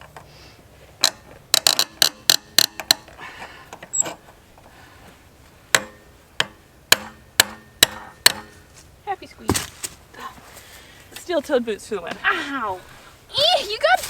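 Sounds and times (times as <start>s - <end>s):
hammer striking metal: 5.7s - 8.6s.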